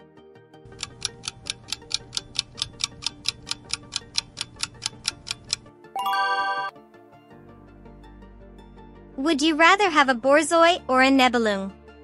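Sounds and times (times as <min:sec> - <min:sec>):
soft background music: 0:00.0 - 0:12.0
clock ticking fast: 0:00.7 - 0:05.7.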